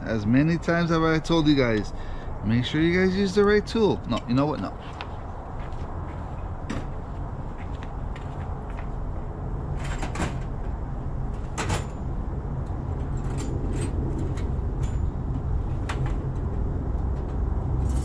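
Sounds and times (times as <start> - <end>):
steady low hum: 0.0 - 18.0
tools and metal parts clicking: 17.8 - 18.0.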